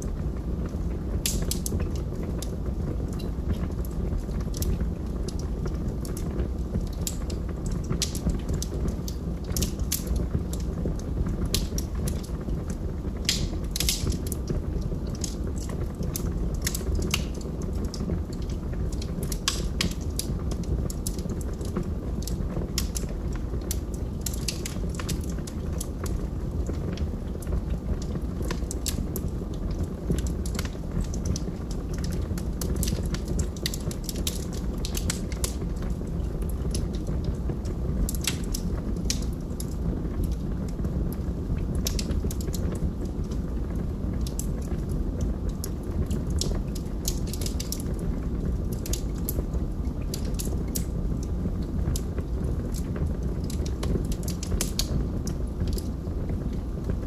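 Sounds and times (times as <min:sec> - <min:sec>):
low rumble of flames: 0:00.0 - 0:57.0
sharp pops of fire: 0:00.0 - 0:57.0
logs crackling: 0:00.7 - 0:02.5, 0:13.2 - 0:40.5.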